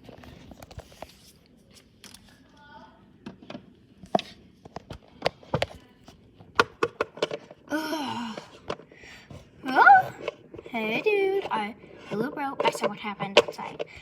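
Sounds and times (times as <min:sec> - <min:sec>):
plastic toys clicking and tapping: 0:06.6 - 0:07.6, 0:10.2 - 0:14.0.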